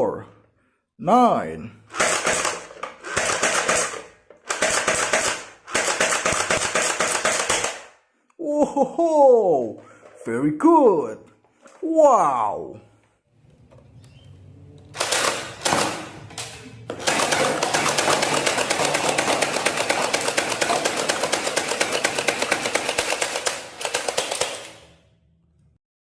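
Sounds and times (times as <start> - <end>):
toy gun firing: 1.9 - 8.0, 15.0 - 16.2, 16.9 - 25.0.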